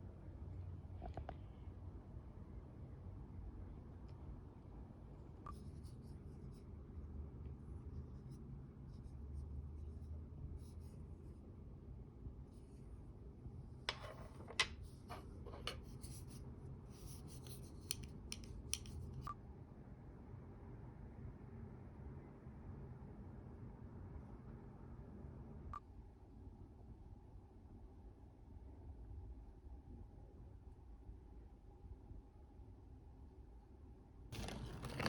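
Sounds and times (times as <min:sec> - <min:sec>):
light scraping: 0:13.9 - 0:16.4, 0:34.4 - 0:35.0.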